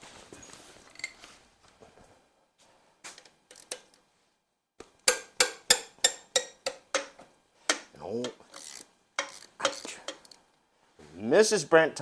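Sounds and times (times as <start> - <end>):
metal tools clinking: 0.8 - 1.3
sharp metallic taps: 5.0 - 8.4, 9.2 - 10.3.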